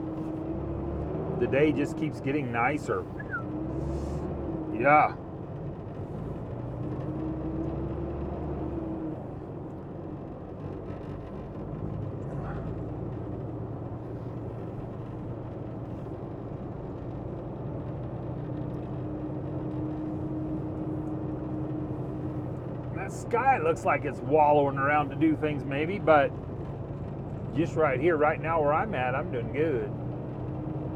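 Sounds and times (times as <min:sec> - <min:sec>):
diesel truck engine droning: 0:00.0 - 0:30.9
road noise: 0:00.0 - 0:30.9.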